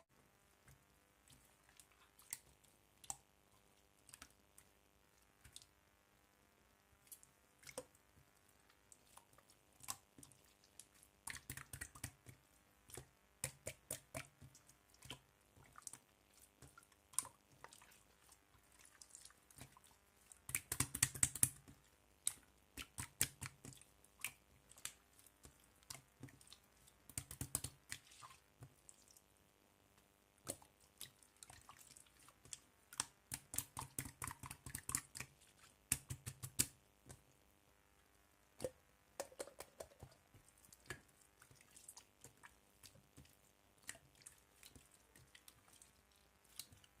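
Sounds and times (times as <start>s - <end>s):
slime squelching and popping: 7.0s - 29.2s, 30.4s - 37.3s, 38.5s - 47.0s.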